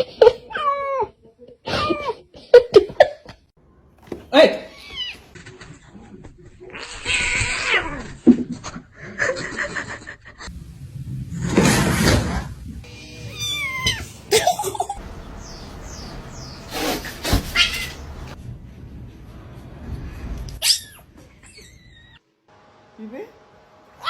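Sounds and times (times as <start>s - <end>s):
cats meowing: 6.6s - 8.2s, 12.9s - 14.7s, 15.4s - 18.4s.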